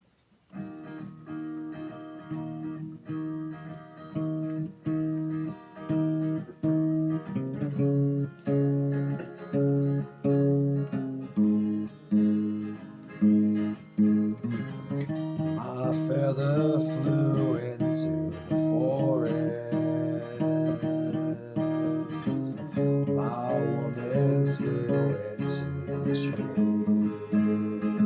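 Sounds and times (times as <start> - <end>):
acoustic guitar strumming: 0.5 - 28.0.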